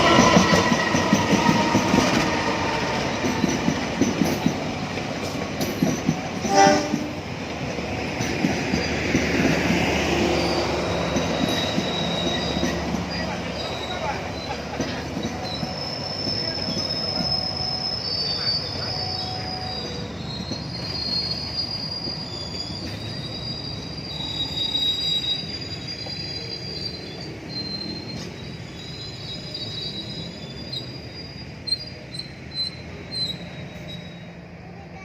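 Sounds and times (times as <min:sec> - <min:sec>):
rumble of train cars: 0:00.0 - 0:35.0
train wheels squealing on rails: 0:00.0 - 0:35.0.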